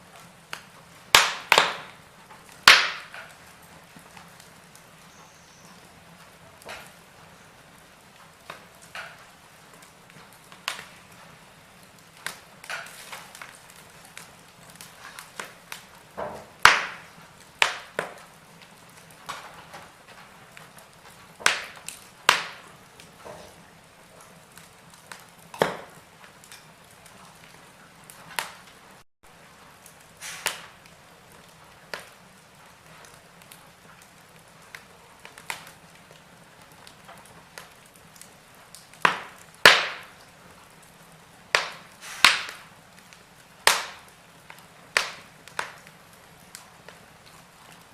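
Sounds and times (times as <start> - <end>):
faint steady hiss: 0.0 - 47.9
fireplace fire crackling: 0.0 - 47.9.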